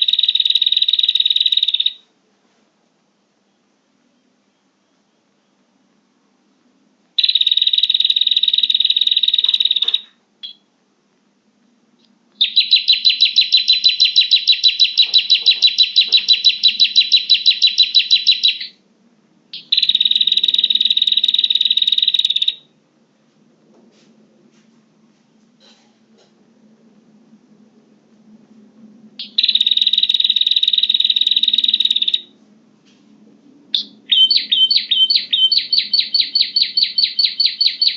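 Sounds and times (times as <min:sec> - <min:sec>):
fast high bird chirping: 0:00.0 - 0:02.0, 0:07.2 - 0:10.6, 0:12.4 - 0:18.8, 0:19.6 - 0:22.6, 0:29.2 - 0:32.3, 0:33.8 - 0:37.9.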